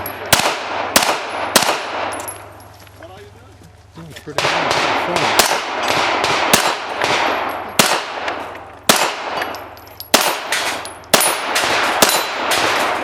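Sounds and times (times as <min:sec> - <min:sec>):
pistol shots echoing: 0:00.0 - 0:02.5, 0:04.4 - 0:13.0
metallic rings: 0:09.4 - 0:11.4.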